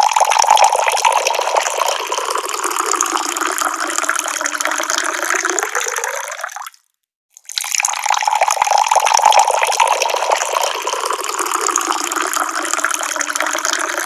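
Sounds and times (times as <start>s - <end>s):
tap water pouring: 0.0s - 14.0s.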